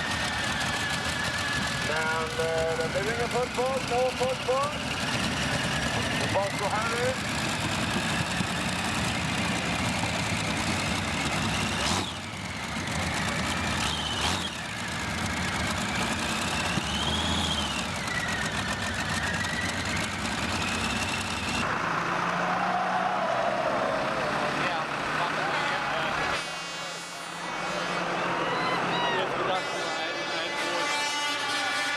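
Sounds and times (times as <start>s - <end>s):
tractor engine running hard: 0.0s - 31.9s.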